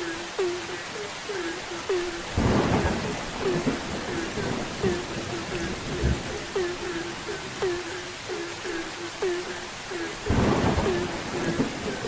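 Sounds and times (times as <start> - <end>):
frogs croaking in chorus: 0.0 - 12.0
steady rain: 0.0 - 12.0
thunder rumble: 2.2 - 9.6, 10.2 - 12.0.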